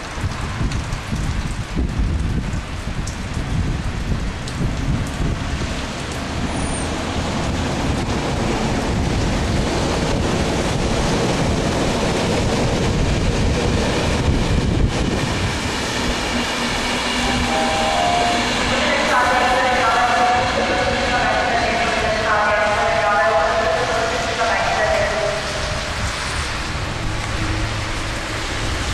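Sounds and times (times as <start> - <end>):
rain falling: 0.0 - 28.9.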